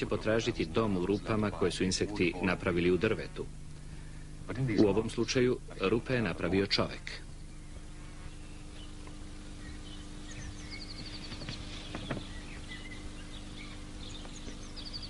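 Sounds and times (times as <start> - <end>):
steady low hum: 0.0 - 15.0
bird chirps and trill: 7.4 - 15.0.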